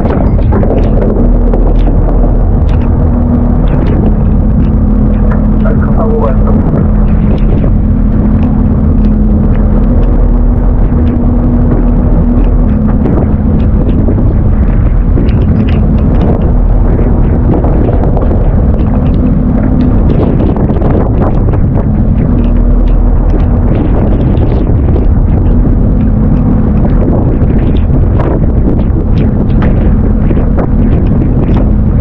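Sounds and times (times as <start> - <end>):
boat engine rumbling: 0.0 - 32.0
steady hum: 0.0 - 32.0.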